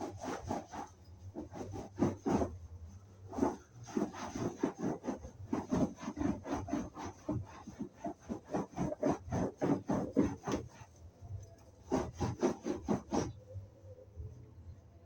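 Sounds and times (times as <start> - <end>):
sponge scrubbing fabric: 0.0 - 13.6.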